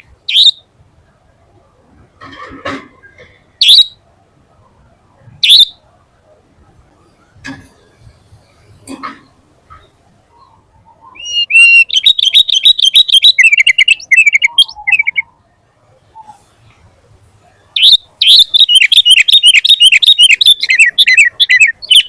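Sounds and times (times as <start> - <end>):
bird singing high notes: 11.1 - 15.3, 17.8 - 22.0.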